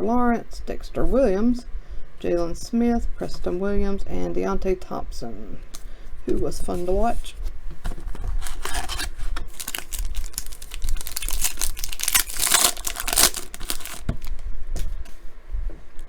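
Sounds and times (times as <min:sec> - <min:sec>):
wrapper crinkling and tearing: 0:08.0 - 0:14.4.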